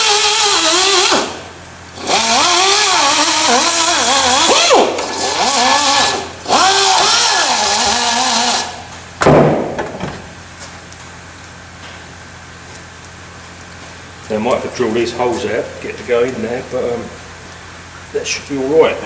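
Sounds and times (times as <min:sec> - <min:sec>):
electric power tool running: 0:00.0 - 0:08.8
sharp loud bang: 0:09.2 - 0:10.2.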